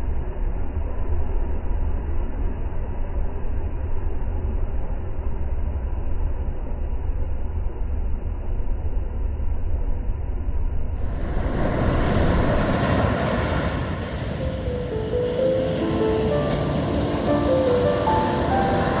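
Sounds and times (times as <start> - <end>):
sea waves washing on beach: 11.0 - 19.0.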